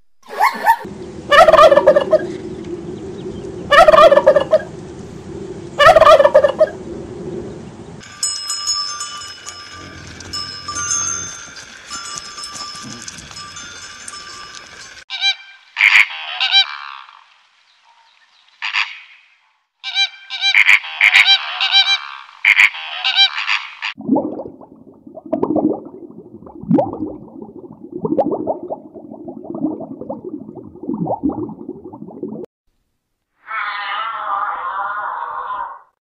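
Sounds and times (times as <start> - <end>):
flamingos honking: 0.4 - 2.4, 3.7 - 4.7, 5.8 - 6.8, 15.1 - 17.3, 18.6 - 24.0
whale pulsed calls: 1.3 - 7.5, 33.4 - 35.9.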